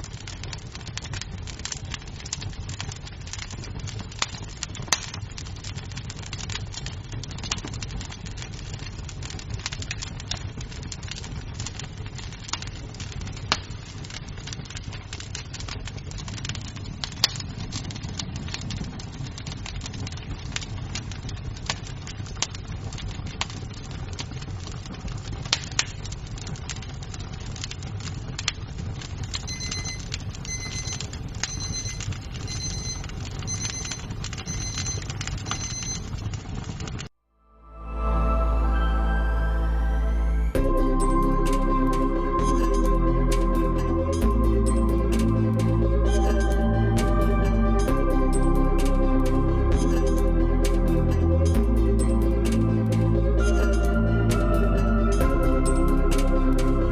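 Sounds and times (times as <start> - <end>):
wood fire crackling: 0.0 - 36.8
high electronic beeps: 29.2 - 36.2, 39.6 - 56.7.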